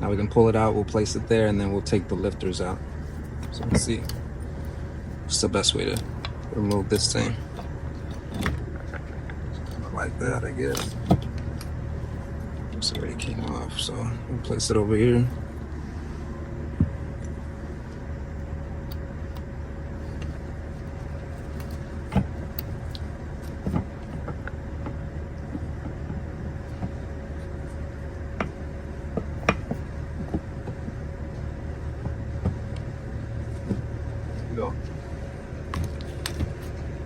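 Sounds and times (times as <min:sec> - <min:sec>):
steady low hum: 0:00.0 - 0:37.0
tools clicking and knocking: 0:03.1 - 0:04.3, 0:05.8 - 0:09.1, 0:10.7 - 0:12.2, 0:20.1 - 0:25.0.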